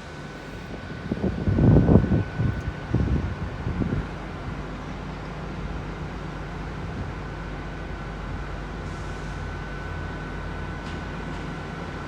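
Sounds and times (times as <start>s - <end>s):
train engine drone: 0.0s - 12.0s
wind buffeting microphone: 0.7s - 4.7s.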